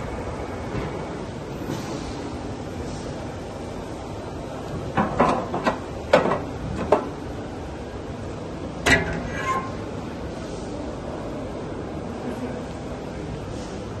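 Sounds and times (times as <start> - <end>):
steady background noise: 0.0 - 14.0
machine metallic clunks and clicks: 4.9 - 7.1, 8.8 - 9.8.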